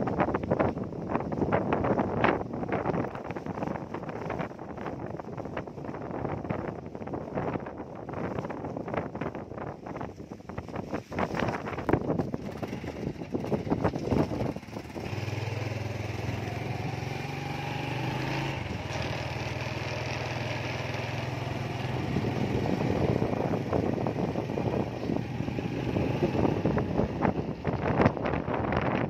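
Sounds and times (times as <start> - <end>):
wind buffeting microphone: 0.0 - 29.0
small engine running: 12.3 - 28.1.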